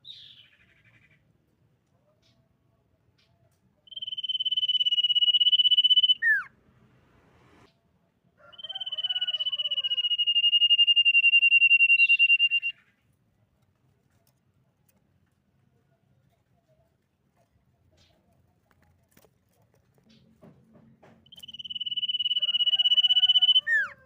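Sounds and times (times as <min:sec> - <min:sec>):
faint bird twittering: 0:03.2 - 0:06.6, 0:08.6 - 0:13.0, 0:21.2 - 0:24.0
bird whistling: 0:03.9 - 0:06.5, 0:08.6 - 0:12.8, 0:21.3 - 0:24.0.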